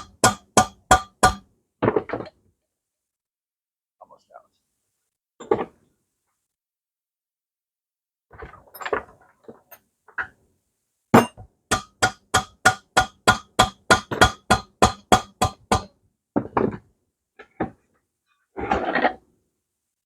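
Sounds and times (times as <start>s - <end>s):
hammer striking metal: 0.0s - 1.4s, 11.2s - 15.9s
tools clinking and knocking: 8.5s - 9.8s.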